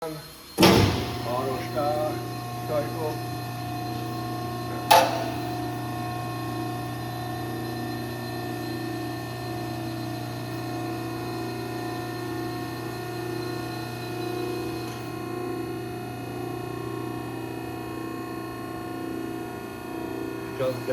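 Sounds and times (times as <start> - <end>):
hydraulic power unit humming: 0.0 - 20.9
sharp clack: 4.9 - 5.4.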